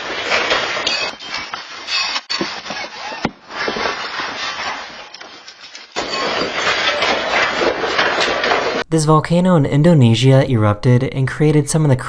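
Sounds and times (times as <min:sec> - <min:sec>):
household objects rattling: 0:00.0 - 0:08.8.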